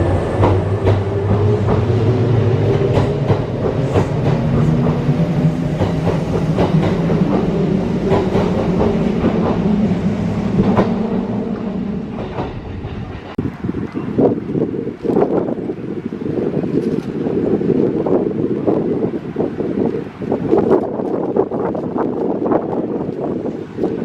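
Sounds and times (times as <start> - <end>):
low running hum of train: 0.0 - 24.0
train wheels clicking over rail joints: 0.3 - 9.7, 12.1 - 13.9.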